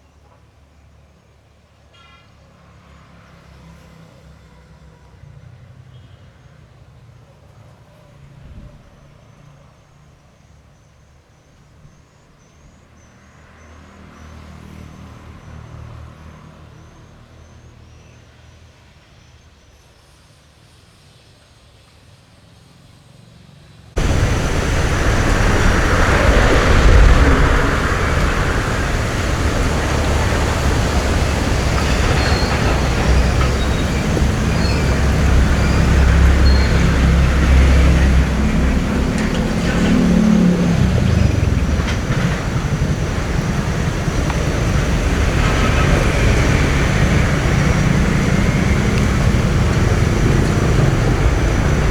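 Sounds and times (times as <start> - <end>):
faint high chirp: 24.0 - 39.8
engine humming: 24.0 - 51.9.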